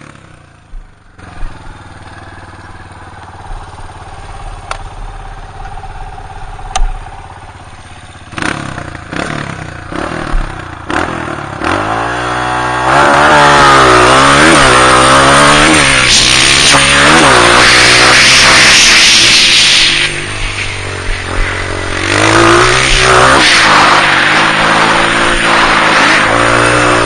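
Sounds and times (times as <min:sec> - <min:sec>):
dirt bike engine revving: 0:08.2 - 0:27.0.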